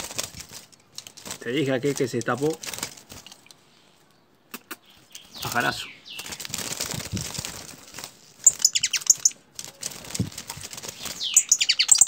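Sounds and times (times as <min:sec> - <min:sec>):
small bird chirping: 0:04.1 - 0:06.6, 0:08.4 - 0:09.5, 0:10.8 - 0:12.0.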